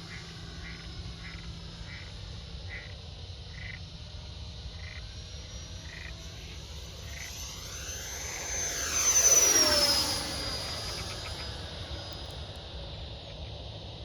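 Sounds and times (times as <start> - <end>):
steady low hum: 3.8 - 13.3.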